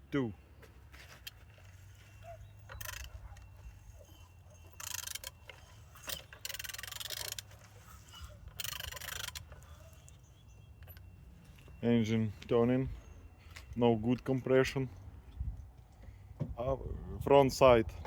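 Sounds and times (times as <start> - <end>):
ratchet wrench clicking: 2.7 - 3.2, 4.8 - 9.7.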